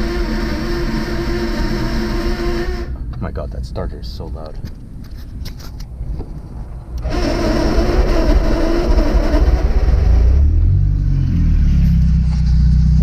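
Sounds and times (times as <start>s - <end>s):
starter motor cranking: 0.0s - 3.0s, 7.0s - 10.6s
loud engine running: 0.0s - 3.1s, 7.0s - 13.0s.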